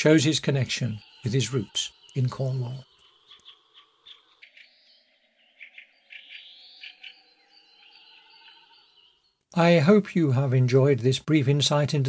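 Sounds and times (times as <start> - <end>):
birds chirping and whistling: 0.0 - 9.4.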